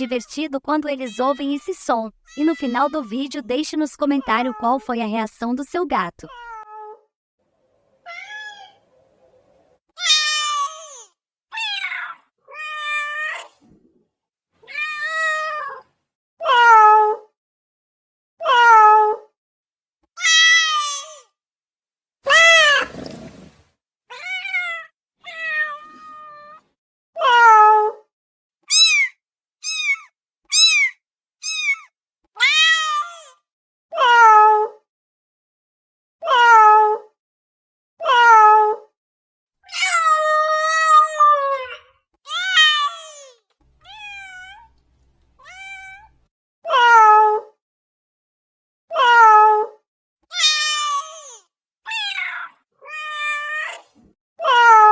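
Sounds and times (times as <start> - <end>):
cats meowing: 0.0 - 3.4, 45.4 - 46.1.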